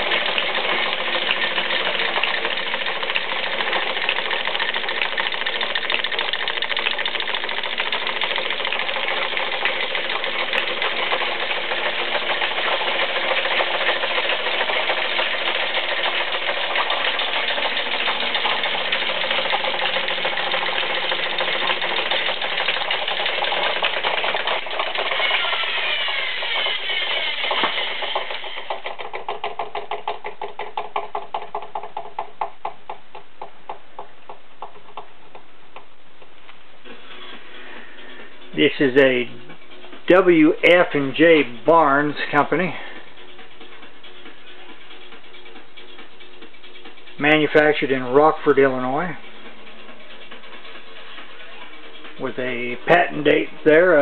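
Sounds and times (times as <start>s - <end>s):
drill press mechanical clatter: 0.0s - 35.5s
rhythmic ticking of machine coasting: 0.0s - 36.3s, 36.9s - 54.0s.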